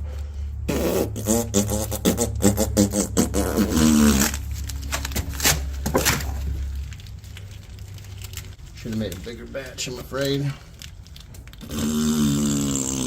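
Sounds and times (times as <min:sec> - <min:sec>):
person vocalizing wordless tune: 0:00.7 - 0:04.5.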